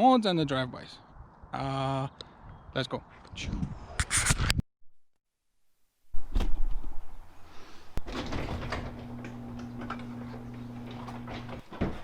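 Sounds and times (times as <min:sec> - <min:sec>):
low electric hum: 0:08.2 - 0:11.6.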